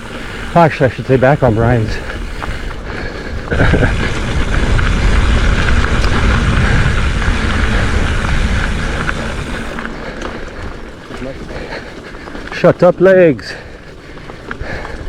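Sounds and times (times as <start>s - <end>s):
bike rolling over dirt: 0.0s - 15.0s
wind on camera microphone: 1.9s - 9.9s.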